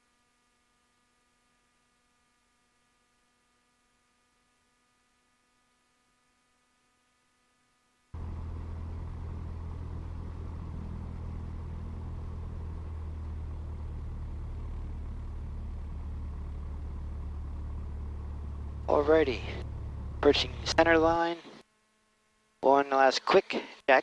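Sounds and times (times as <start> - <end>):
airplane engine and propeller drone: 8.2 - 21.6.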